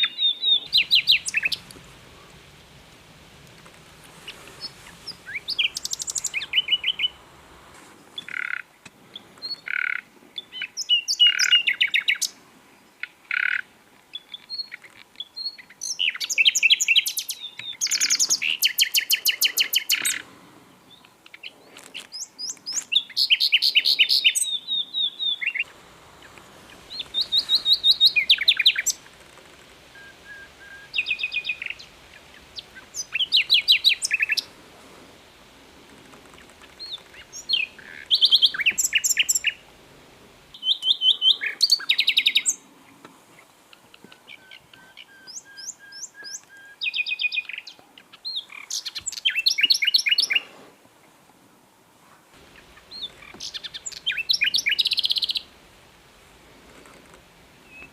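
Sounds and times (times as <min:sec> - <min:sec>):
pure whistled bird notes: 0:00.0 - 0:01.6, 0:04.4 - 0:07.2, 0:13.4 - 0:20.2, 0:22.1 - 0:29.1, 0:29.9 - 0:34.5, 0:36.7 - 0:39.6, 0:40.5 - 0:42.6, 0:44.0 - 0:50.5, 0:52.6 - 0:55.5
nightingale singing trills: 0:00.0 - 0:07.3, 0:08.2 - 0:34.6, 0:36.4 - 0:39.8, 0:40.4 - 0:42.6, 0:43.7 - 0:50.5, 0:52.4 - 0:55.7, 0:57.6 - 0:57.9.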